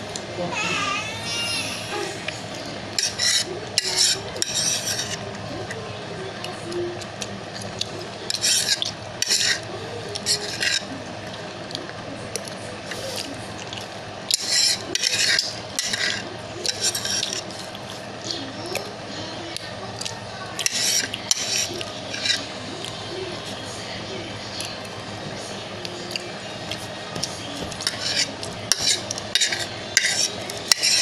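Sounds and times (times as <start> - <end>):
cutlery scraping a bowl: 2.9 - 5.2, 8.3 - 10.9, 14.3 - 17.7, 20.6 - 22.5, 27.7 - 31.0.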